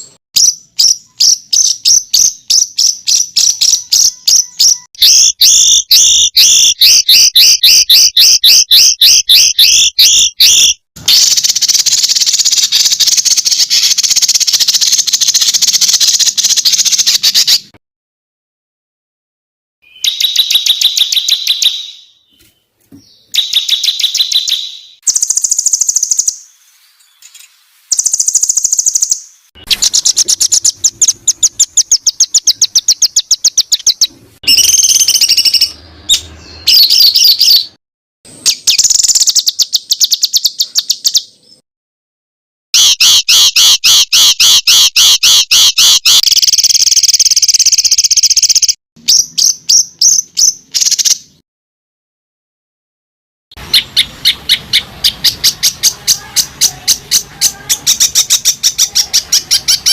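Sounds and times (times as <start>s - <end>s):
songbird rapid trills: 23.3s - 35.7s.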